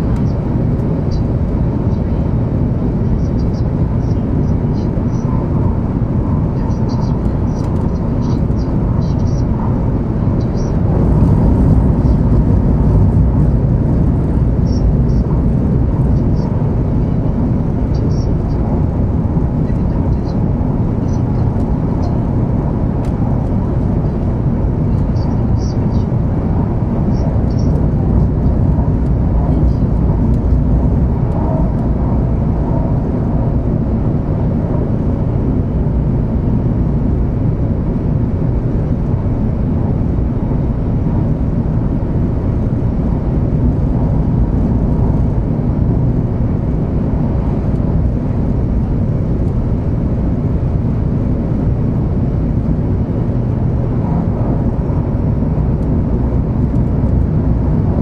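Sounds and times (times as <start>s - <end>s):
train wheels rumbling on rail: 0.0s - 37.4s.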